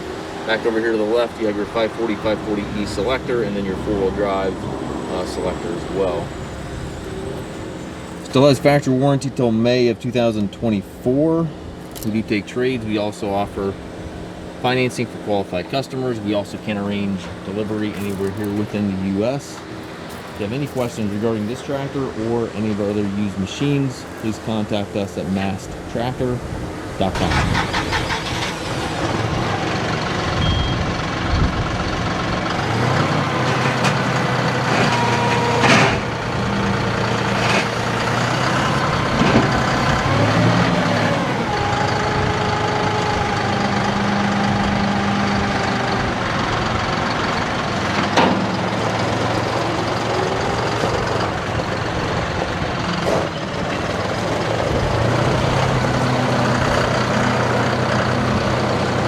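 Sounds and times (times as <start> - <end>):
tractor diesel engine running: 0.0 - 59.0
sharp clunks: 48.0 - 48.7.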